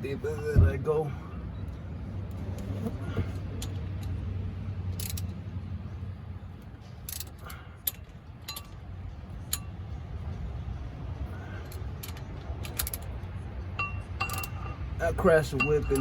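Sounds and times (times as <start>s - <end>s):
wrench and bolts clinking: 4.9s - 5.4s, 6.6s - 9.8s, 11.5s - 16.0s.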